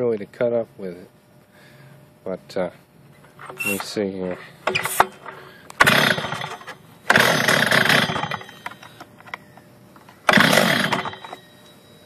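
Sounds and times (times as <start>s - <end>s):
saw engine firing and stalling: 5.8s - 8.7s, 10.3s - 11.4s.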